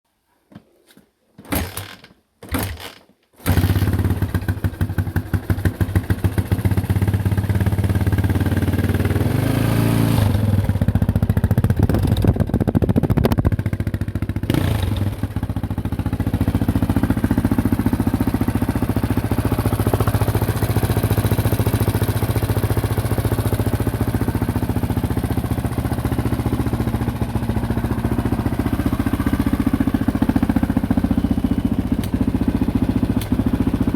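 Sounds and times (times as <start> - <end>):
motorcycle engine starting and revving: 1.5 - 33.9.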